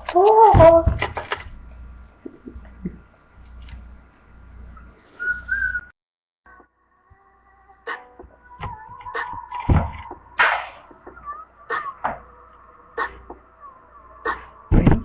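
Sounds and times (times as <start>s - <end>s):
wavering whistled note: 5.2s - 5.9s.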